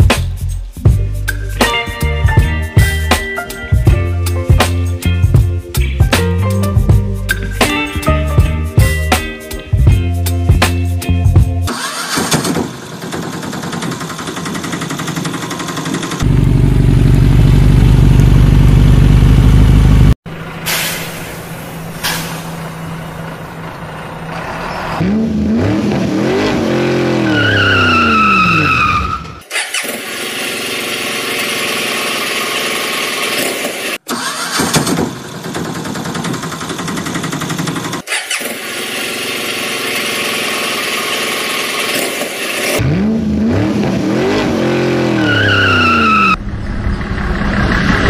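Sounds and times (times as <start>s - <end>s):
engine starting and revving: 11.7s - 48.0s.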